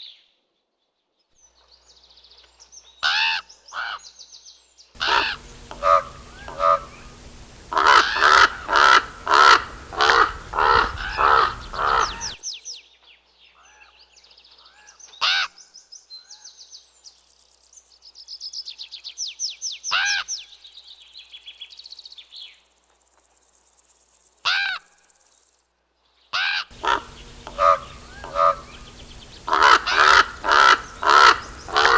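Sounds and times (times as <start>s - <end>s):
raven croaking: 5.0s - 12.4s, 26.7s - 31.9s
faint high chirping: 5.0s - 12.9s, 26.7s - 31.9s.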